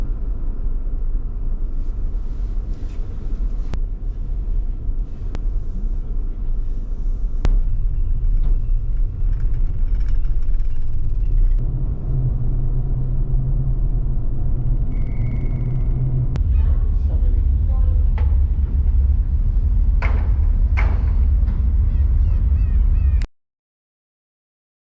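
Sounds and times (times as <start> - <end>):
car rumbling on the road: 0.0 - 23.3.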